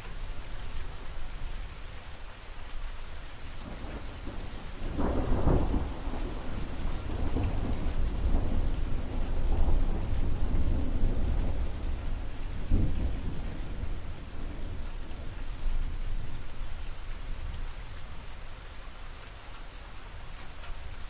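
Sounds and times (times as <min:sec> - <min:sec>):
low rumble of thunder: 0:00.0 - 0:21.0
steady rain falling: 0:00.0 - 0:21.0.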